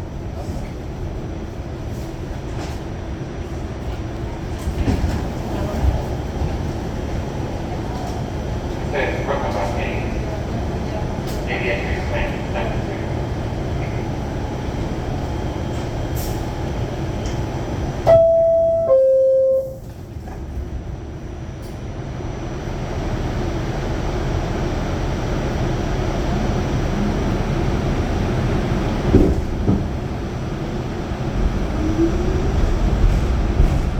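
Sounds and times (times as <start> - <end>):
subway train hum: 0.0 - 33.9
train pulling out: 3.4 - 20.6, 21.4 - 33.9
two-note falling door chime: 18.1 - 19.8.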